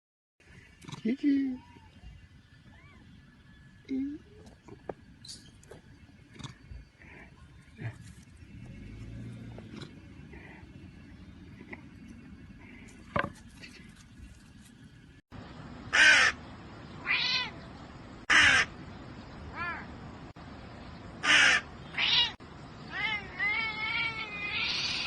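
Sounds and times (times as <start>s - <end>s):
harsh cawing calls: 15.9s - 16.4s, 18.3s - 18.7s, 21.2s - 25.0s
cat meowing: 17.0s - 17.6s, 21.9s - 25.0s.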